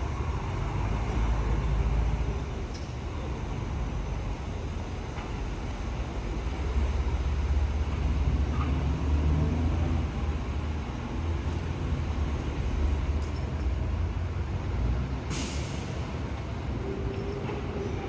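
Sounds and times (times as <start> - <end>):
air brake hiss: 15.3 - 16.1.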